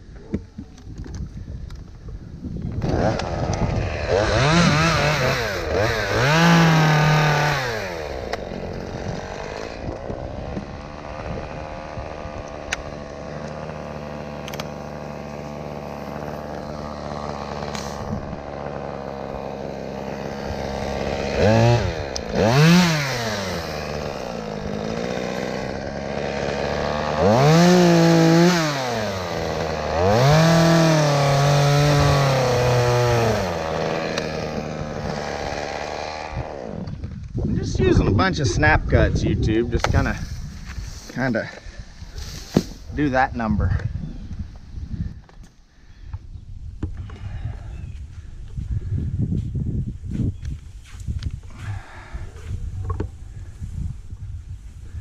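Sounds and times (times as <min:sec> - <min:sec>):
chainsaw cutting limbs: 0:02.6 - 0:37.5, 0:39.8 - 0:43.4
chainsaw revving and idling: 0:02.8 - 0:37.2, 0:39.8 - 0:43.5.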